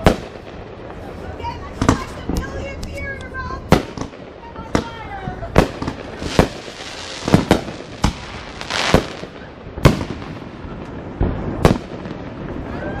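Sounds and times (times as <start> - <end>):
fireworks bangs: 0.0 - 13.0
fireworks crackling hiss: 0.0 - 13.0.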